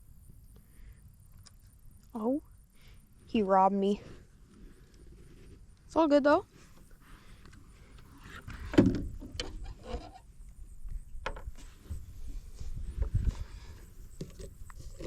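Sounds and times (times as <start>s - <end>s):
dull thump: 8.5s - 9.6s.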